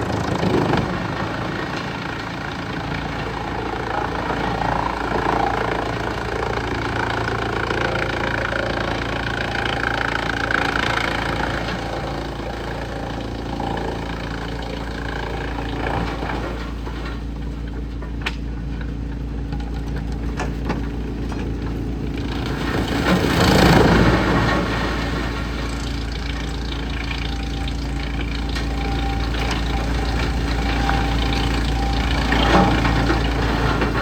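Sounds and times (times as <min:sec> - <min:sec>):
wood chipper engine running: 0:00.0 - 0:34.0.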